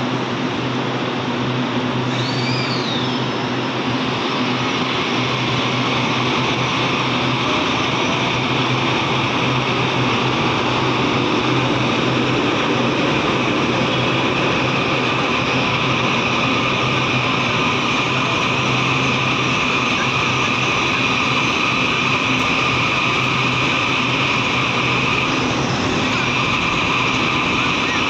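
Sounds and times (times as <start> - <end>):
train running noise: 0.0 - 28.0.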